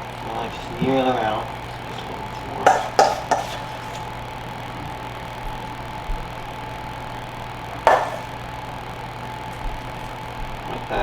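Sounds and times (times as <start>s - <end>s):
appliance motor hum with whine: 0.0s - 11.0s
utensil striking a dish: 2.6s - 4.1s, 7.9s - 8.4s.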